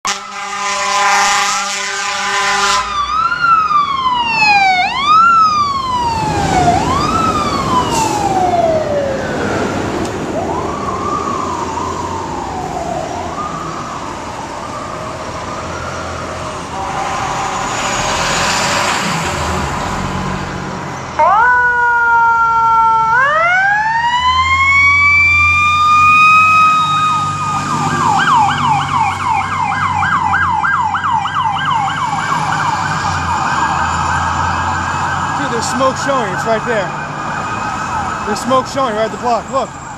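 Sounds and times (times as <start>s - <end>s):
fire engine horn blast: 0.0s - 3.2s, 16.5s - 19.0s
siren yelp: 0.1s - 18.1s, 21.1s - 39.9s
wailing siren: 0.1s - 39.9s.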